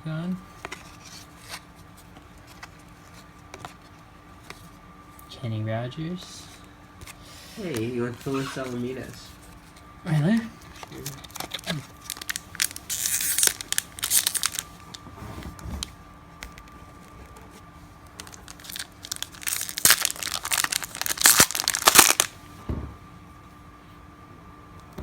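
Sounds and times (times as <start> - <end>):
wax-paper wrappers tearing and crinkling: 7.6 - 22.4.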